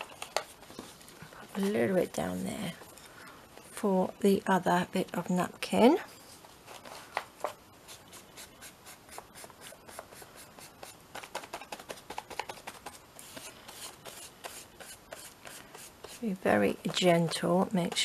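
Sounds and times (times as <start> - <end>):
paintbrush strokes on paper: 0.0 - 2.8, 13.2 - 17.4.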